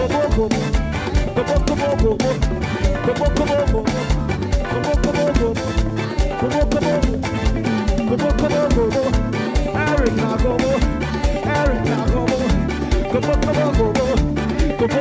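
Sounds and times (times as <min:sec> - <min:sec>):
live band playing upbeat groove: 0:00.0 - 0:15.0
steady drum beat: 0:00.0 - 0:15.0.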